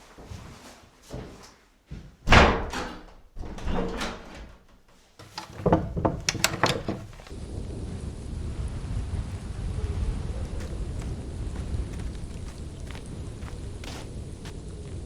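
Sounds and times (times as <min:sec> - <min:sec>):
knocks and thumps: 0:05.2 - 0:07.4.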